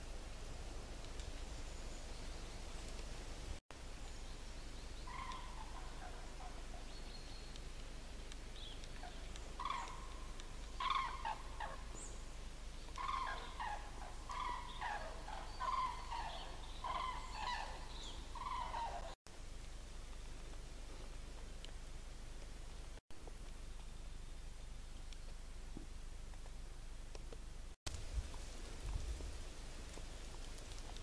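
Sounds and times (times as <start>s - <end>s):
bird calling: 4.6s - 7.7s, 8.5s - 19.2s.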